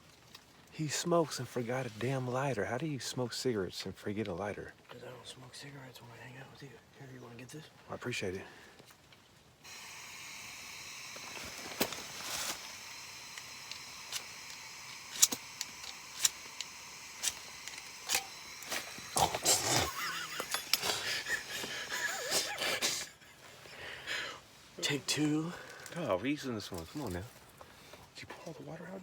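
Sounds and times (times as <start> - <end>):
gas hissing from stove burner: 9.6 - 26.1
igniter clicks: 9.7 - 22.9.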